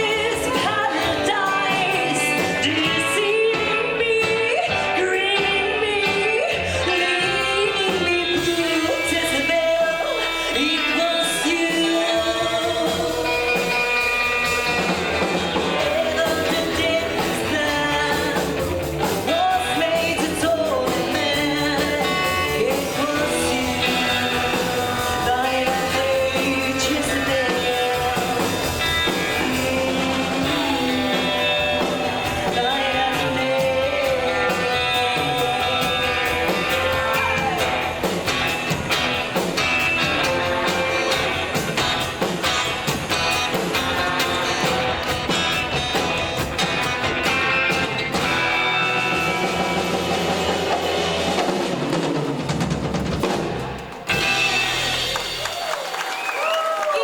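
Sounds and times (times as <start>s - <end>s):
lead voice singing: 0.0s - 52.4s
rockabilly band playing: 0.0s - 57.0s.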